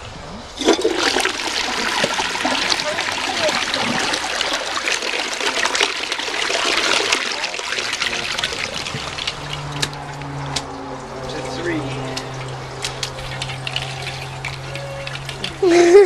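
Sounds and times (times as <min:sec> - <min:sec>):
low steady hum: 0:00.0 - 0:16.0
water trickling into toilet bowl: 0:00.6 - 0:16.0.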